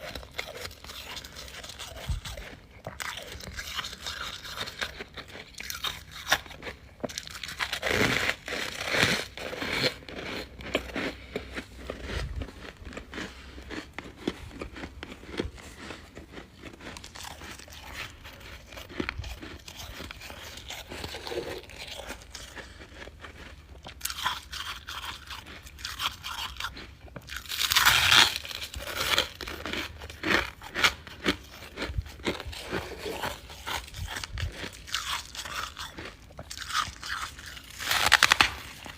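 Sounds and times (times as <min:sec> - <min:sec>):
crunching and chewing frost: 0:00.0 - 0:38.9.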